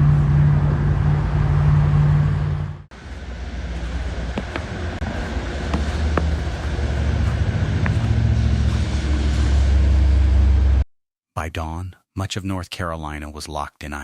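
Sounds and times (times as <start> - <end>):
motor vehicle rumble: 0.0 - 10.8.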